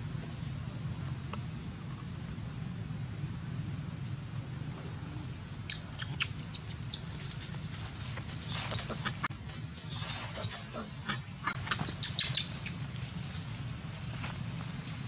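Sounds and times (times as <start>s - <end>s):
steady low rumble: 0.0s - 15.0s
high-pitched animal squeaks: 5.6s - 7.1s, 9.9s - 12.8s
faint high chirp: 11.7s - 12.8s.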